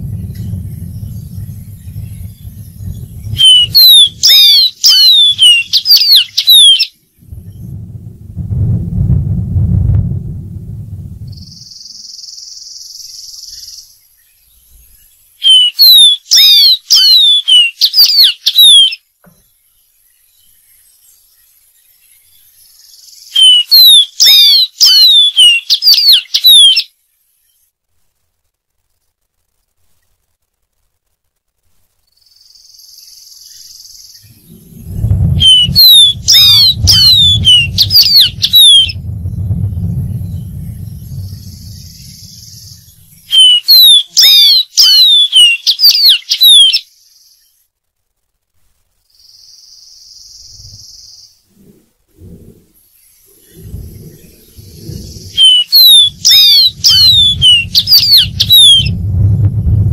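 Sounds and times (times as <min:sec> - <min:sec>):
low rumble: 0:00.0 - 0:05.4, 0:07.1 - 0:11.9, 0:34.2 - 0:43.4, 0:50.4 - 0:50.9, 0:51.6 - 0:59.9
bird singing whistled notes: 0:00.0 - 0:07.8, 0:11.2 - 0:19.0, 0:19.7 - 0:26.9, 0:32.1 - 0:47.6, 0:49.2 - 0:51.4, 0:53.0 - 0:59.4
faint high hiss: 0:00.0 - 0:59.9
faint high whine: 0:27.0 - 0:44.2.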